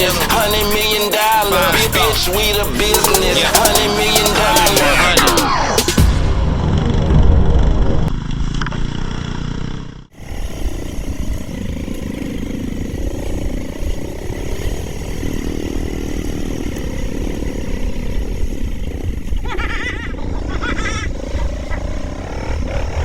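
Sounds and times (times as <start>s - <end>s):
motorcycle engines running: 0.0s - 7.1s, 7.8s - 23.0s
music: 0.0s - 7.2s.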